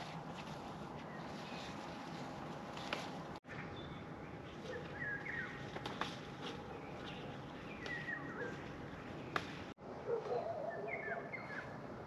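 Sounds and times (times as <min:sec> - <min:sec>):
small birds chirping: 0:03.5 - 0:06.0, 0:06.6 - 0:09.6.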